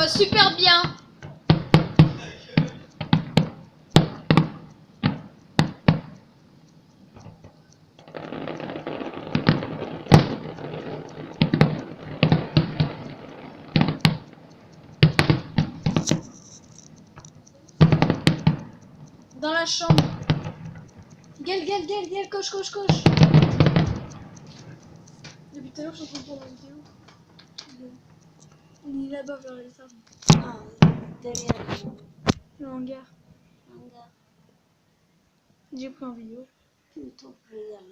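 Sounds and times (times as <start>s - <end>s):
fireworks bangs: 0.0s - 6.2s, 7.1s - 28.8s, 30.2s - 32.5s
fireworks crackling: 0.0s - 33.1s.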